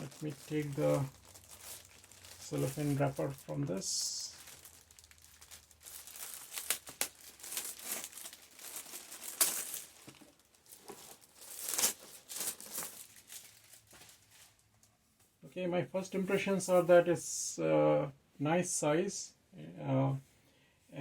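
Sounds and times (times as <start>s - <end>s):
cellophane ripping: 0.0s - 14.3s
cellophane wrapper crinkling: 0.0s - 14.9s.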